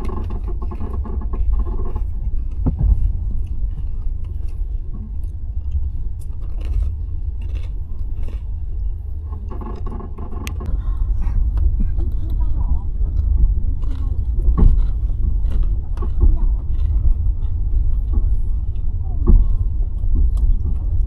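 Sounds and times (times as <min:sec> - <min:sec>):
train rumbling: 0:00.0 - 0:21.0
clicks and rattles: 0:09.2 - 0:10.7.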